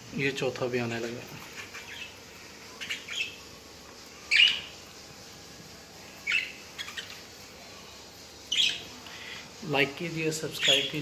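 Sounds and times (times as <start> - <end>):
budgerigars chirping: 2.8 - 3.4, 4.3 - 4.8, 6.2 - 7.2, 8.5 - 8.9, 10.6 - 11.0.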